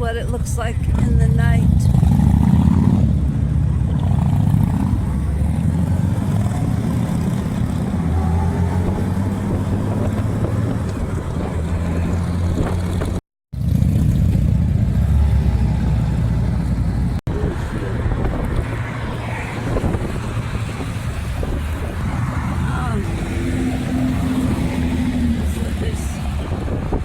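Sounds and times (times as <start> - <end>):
vehicle engine rumble: 0.0 - 27.0.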